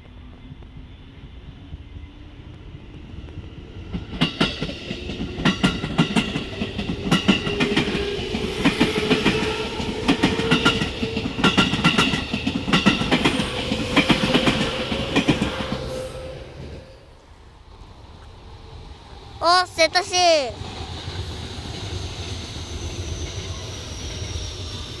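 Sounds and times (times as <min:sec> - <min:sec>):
train running drone: 0:00.0 - 0:25.0
wheels clacking over rail joints: 0:04.0 - 0:16.0.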